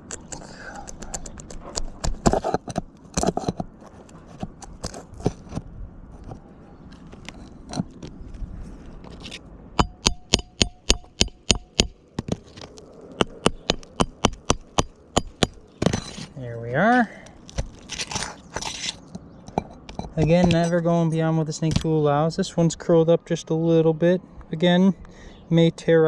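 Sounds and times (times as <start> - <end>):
metal tool scraping and tapping: 9.2 - 12.3, 13.2 - 16.3, 17.6 - 20.8.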